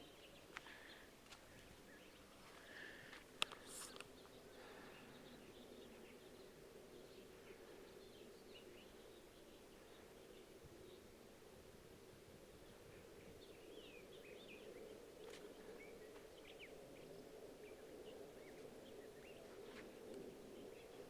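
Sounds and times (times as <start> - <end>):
steady low hum: 0.0 - 21.0
faint clicks: 3.4 - 4.3.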